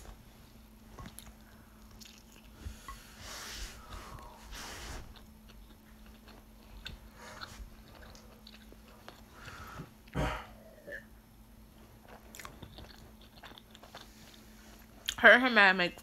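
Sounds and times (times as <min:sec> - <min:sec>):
person chewing food: 0:00.9 - 0:03.2, 0:03.8 - 0:10.2, 0:11.7 - 0:15.2.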